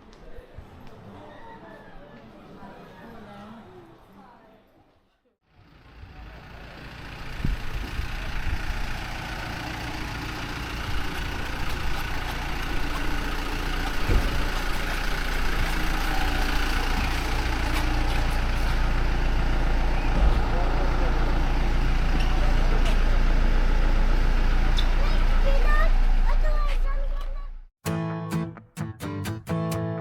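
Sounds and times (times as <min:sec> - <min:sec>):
vehicle engine rumbling: 0:05.5 - 0:27.7.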